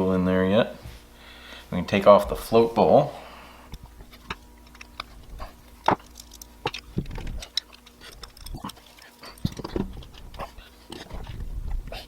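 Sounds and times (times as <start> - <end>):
hand tools clicking on metal parts: 4.3 - 11.1.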